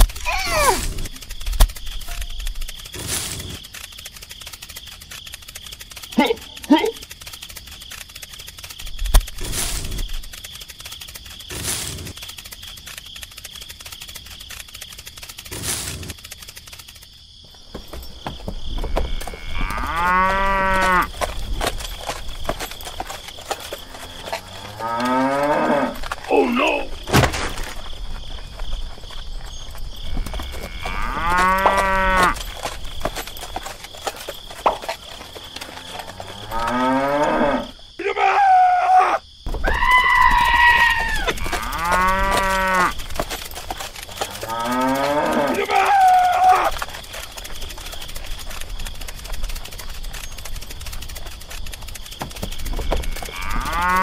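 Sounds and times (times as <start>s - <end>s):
cattle mooing: 19.1s - 21.1s, 30.2s - 32.4s, 40.7s - 43.0s, 44.2s - 46.7s, 53.0s - 54.0s.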